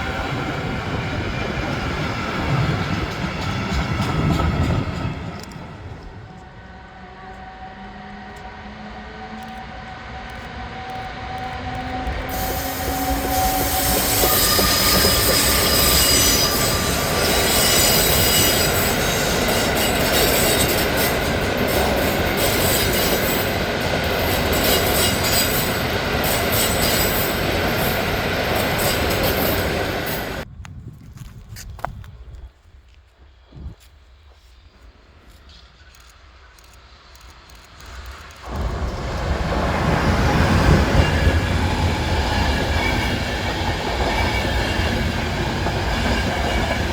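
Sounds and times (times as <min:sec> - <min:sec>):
rail noise: 0:00.0 - 0:30.5, 0:31.1 - 0:46.9
train passing: 0:00.0 - 0:30.5, 0:34.4 - 0:46.9
wheel squeal: 0:12.2 - 0:30.4.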